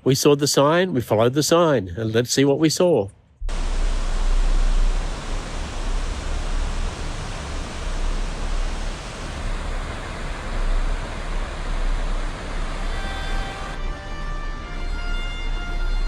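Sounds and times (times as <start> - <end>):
low rumble: 3.4 - 13.8
waterfall roaring: 3.5 - 13.8.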